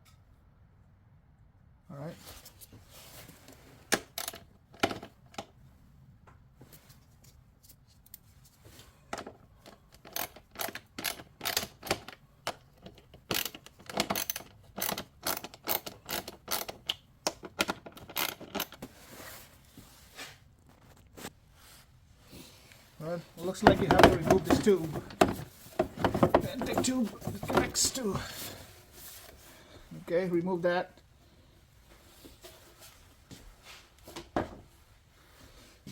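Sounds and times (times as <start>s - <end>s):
hand ratchet clicking: 9.9s - 18.8s.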